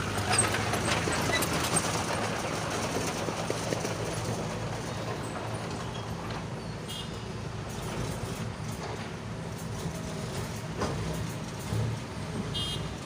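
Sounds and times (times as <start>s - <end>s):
diesel engine running: 0.0s - 6.4s.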